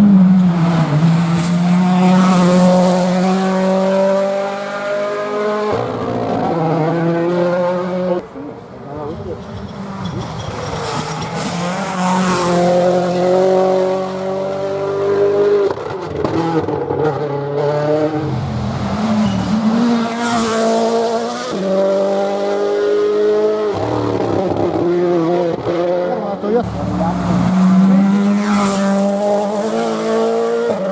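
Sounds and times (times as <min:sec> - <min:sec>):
rally car engine at full throttle: 0:00.0 - 0:30.9.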